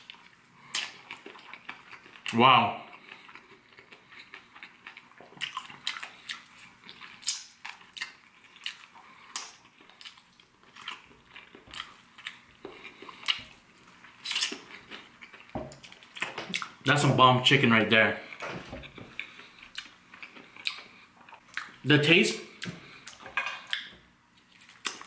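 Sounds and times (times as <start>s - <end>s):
chewing on a chicken bone: 0.0s - 16.8s.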